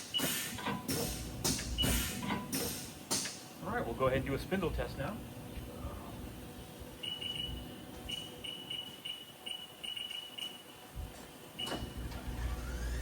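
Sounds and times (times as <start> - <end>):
short high keypad beeps: 7.0 - 10.7.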